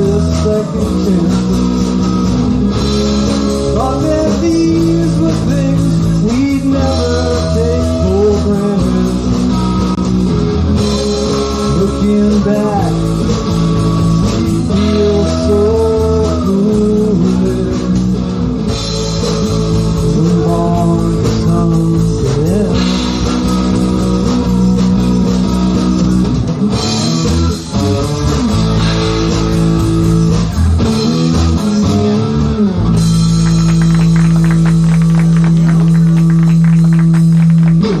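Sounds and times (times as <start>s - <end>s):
live rock band playing: 0.0s - 38.0s.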